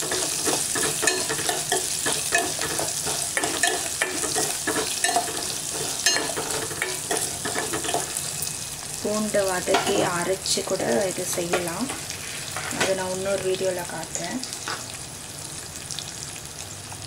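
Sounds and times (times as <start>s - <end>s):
spoon scraping and clinking on pot: 0.0s - 8.2s
food sizzling in hot oil: 0.0s - 17.0s.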